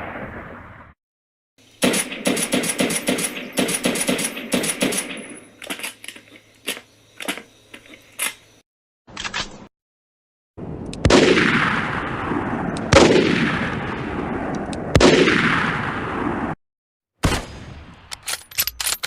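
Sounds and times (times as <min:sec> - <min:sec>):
automatic gunfire: 0:01.8 - 0:05.2.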